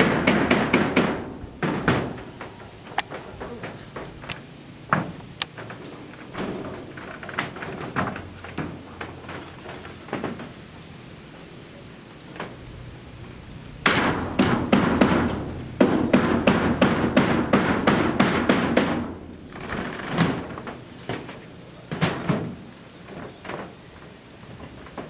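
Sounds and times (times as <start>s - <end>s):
hammer blows on roof: 0.0s - 10.6s, 12.3s - 25.0s.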